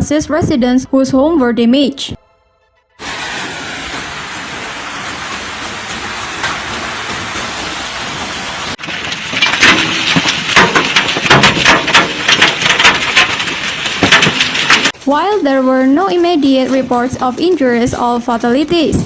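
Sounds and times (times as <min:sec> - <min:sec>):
hailstones clattering on hard surfaces: 0:03.0 - 0:15.0
hail falling roar: 0:03.0 - 0:17.8.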